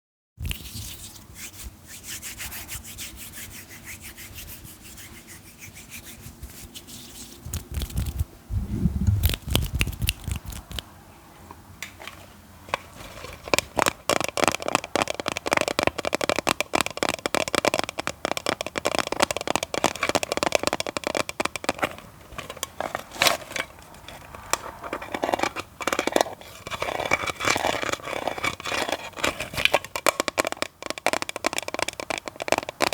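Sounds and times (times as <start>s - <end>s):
fine scratching: 0.5s - 10.8s, 22.4s - 29.7s
low thumps and clicks: 8.1s - 10.8s
fast tapping: 13.5s - 22.0s, 29.9s - 32.9s.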